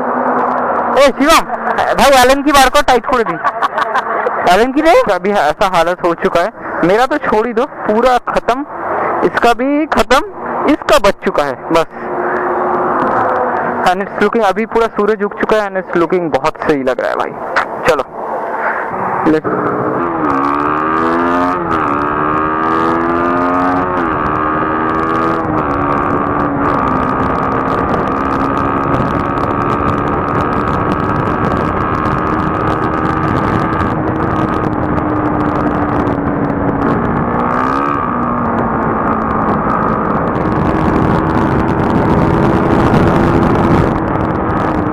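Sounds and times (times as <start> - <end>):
motorcycle engine accelerating: 0.0 - 5.9, 11.9 - 14.8, 17.4 - 44.9
wind rush: 17.3 - 44.9.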